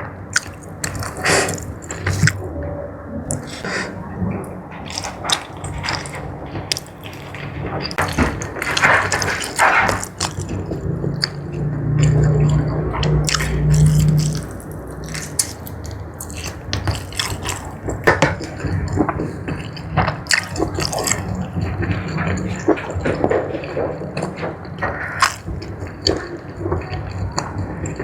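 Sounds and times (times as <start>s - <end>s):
wet noisy chewing: 0.3s - 2.6s, 3.2s - 28.0s
sharp mouth clicks: 0.4s - 2.4s
wet mouth clicks and smacks: 0.4s - 2.4s, 12.0s - 17.8s.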